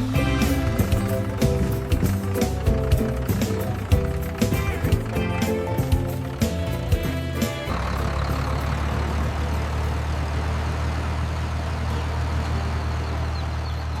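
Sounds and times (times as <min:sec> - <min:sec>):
music: 0:00.0 - 0:10.3
heavy engine idling: 0:00.0 - 0:14.0.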